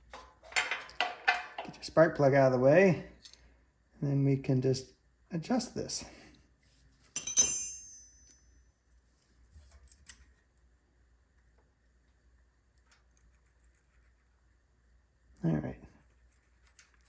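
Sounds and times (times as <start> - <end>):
metal tool clinking on metal: 7.2 - 8.6.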